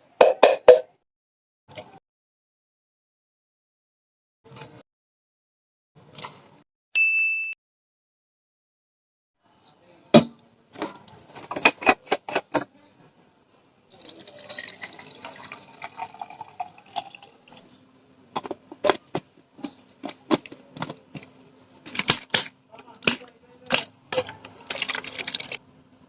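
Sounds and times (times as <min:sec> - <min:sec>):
water pouring: 0:13.9 - 0:17.7, 0:24.5 - 0:25.6.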